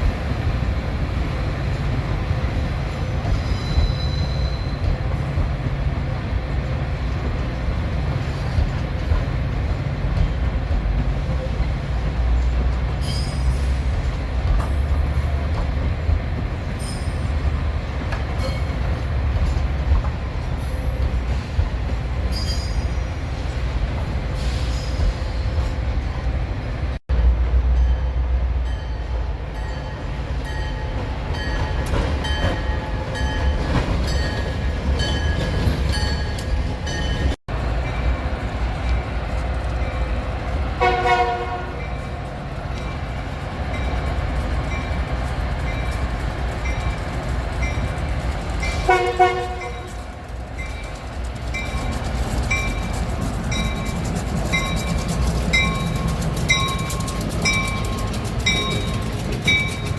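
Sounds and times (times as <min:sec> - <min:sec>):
train rumbling: 0:00.0 - 0:59.9
train horn blast: 0:40.8 - 0:41.9, 0:48.8 - 0:50.0.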